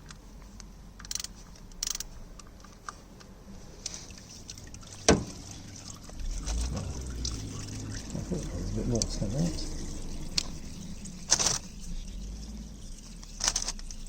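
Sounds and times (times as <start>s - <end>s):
tools clicking and scraping: 0.0s - 5.3s, 9.0s - 12.2s, 12.8s - 14.0s
oil trickling into pan: 3.6s - 14.0s.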